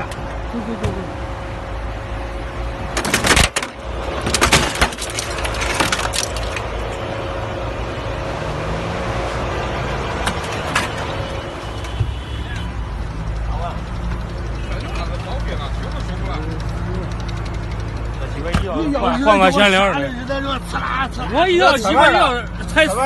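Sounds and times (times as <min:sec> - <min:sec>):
vehicle low rumble: 0:00.0 - 0:23.0
car crash crunching: 0:03.0 - 0:06.8.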